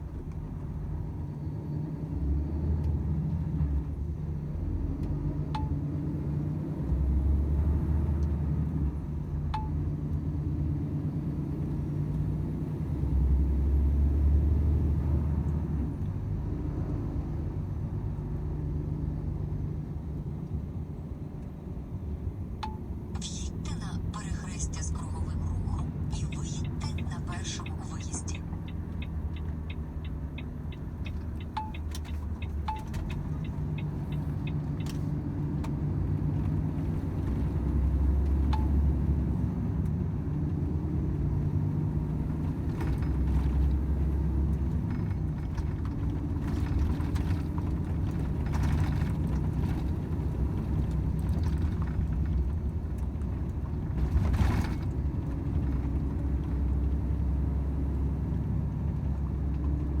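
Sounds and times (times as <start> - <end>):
truck diesel engine drone: 23.1 - 34.8.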